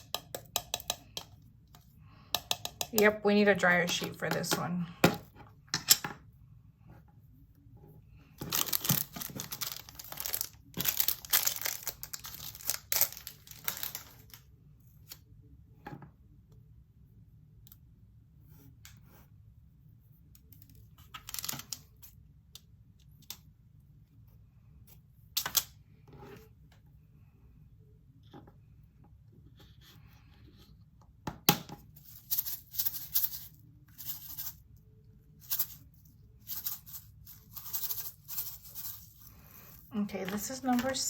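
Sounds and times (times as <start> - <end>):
plastic bags crinkling and tearing: 8.4 - 14.4.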